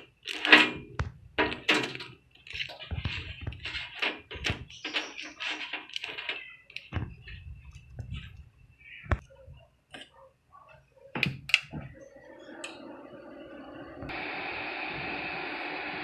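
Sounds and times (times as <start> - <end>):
steady electrical hiss: 11.4 - 16.0.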